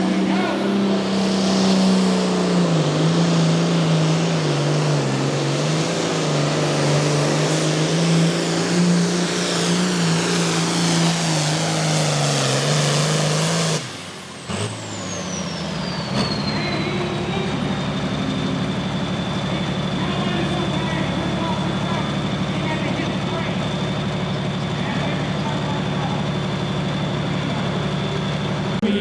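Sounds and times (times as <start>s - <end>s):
tractor engine under load: 0.0s - 29.0s
high whine: 15.3s - 29.0s.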